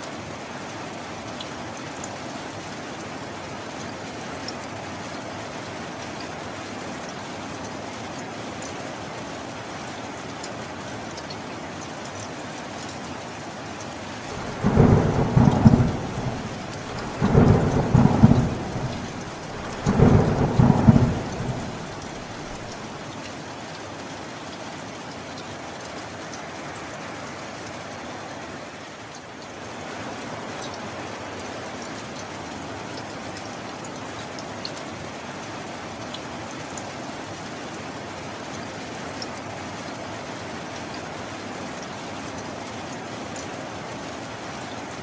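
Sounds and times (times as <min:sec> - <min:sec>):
steady rain: 0:00.0 - 0:45.0
thunder rolling: 0:14.2 - 0:22.8.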